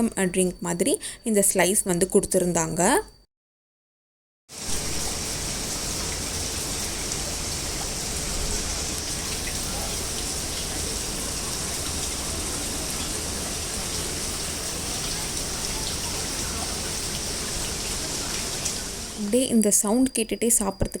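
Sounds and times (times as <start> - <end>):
indoor waterfall rushing: 4.6 - 19.2.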